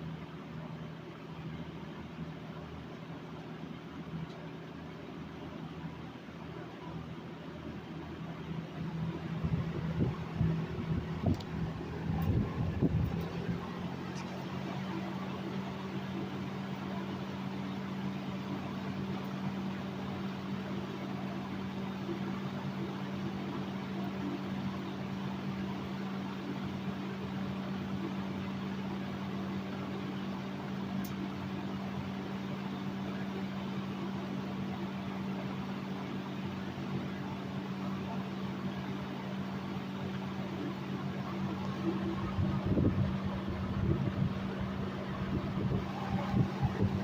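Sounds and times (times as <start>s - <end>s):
box fan running: 0.0s - 47.0s.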